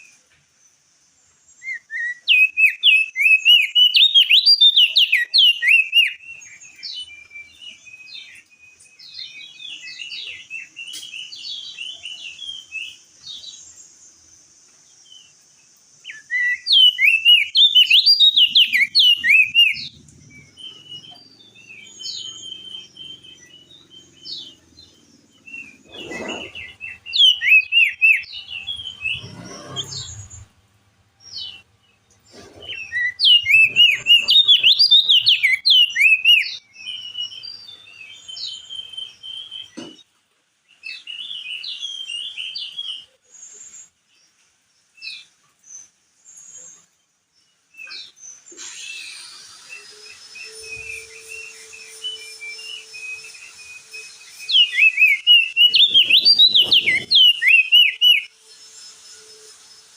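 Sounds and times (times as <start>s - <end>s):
soft bird twittering: 1.3s - 30.6s, 31.2s - 39.8s, 47.8s - 59.9s
bird warbling chirps: 1.6s - 8.5s, 16.0s - 30.6s, 32.2s - 39.6s, 47.8s - 59.6s.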